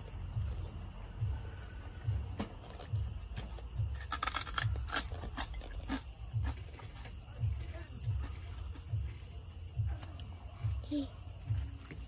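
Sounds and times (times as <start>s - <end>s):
chewing crunchy pork rinds: 2.6s - 9.0s.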